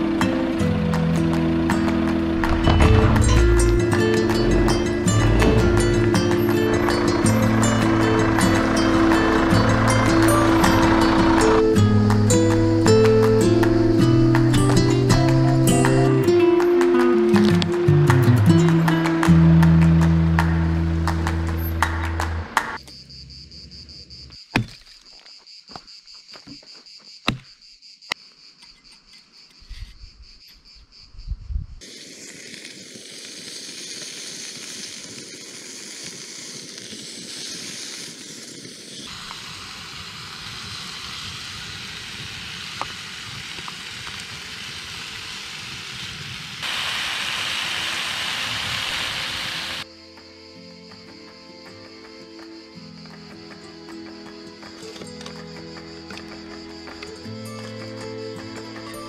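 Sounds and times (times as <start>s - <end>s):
crickets chirping: 0.0s - 59.0s
steady rushing noise: 1.7s - 12.2s.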